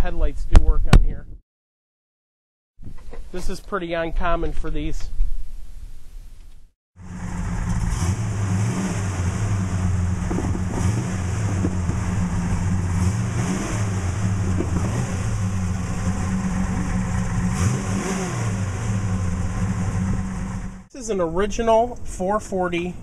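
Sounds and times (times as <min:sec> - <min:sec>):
car engine idling: 0:07.0 - 0:20.9.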